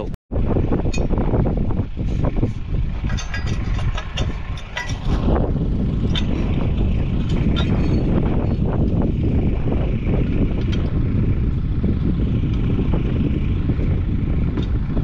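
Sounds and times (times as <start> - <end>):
vehicle rumbling: 0.0 - 15.0
wind on microphone: 0.0 - 15.0
light rattles and clicks: 2.2 - 9.0, 10.6 - 11.0.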